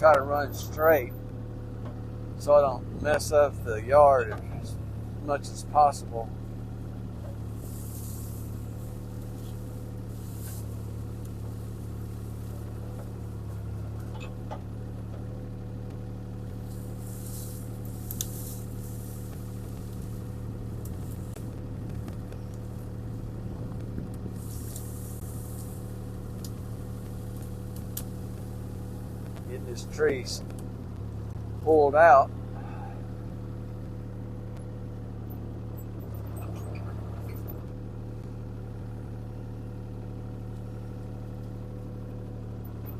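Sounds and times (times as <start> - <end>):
excavator diesel engine running: 0.0 - 42.9
hissing swishes: 7.6 - 10.8.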